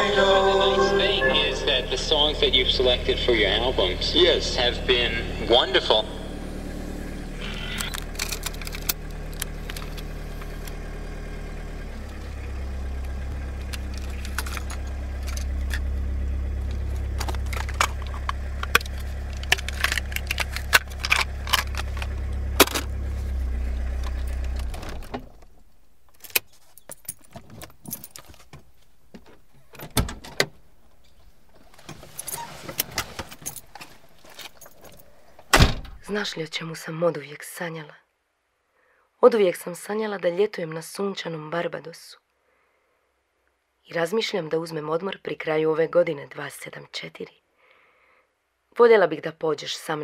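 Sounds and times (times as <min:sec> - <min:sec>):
car engine running: 0:00.0 - 0:29.8
keys jangling and clicking: 0:13.6 - 0:15.8, 0:26.1 - 0:28.5, 0:33.2 - 0:35.2.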